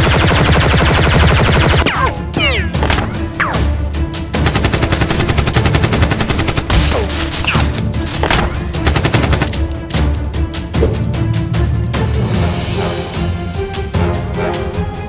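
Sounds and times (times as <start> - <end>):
rapid automatic gunfire: 0.0 - 1.9, 4.4 - 6.8, 8.8 - 9.5
background music: 0.0 - 15.0.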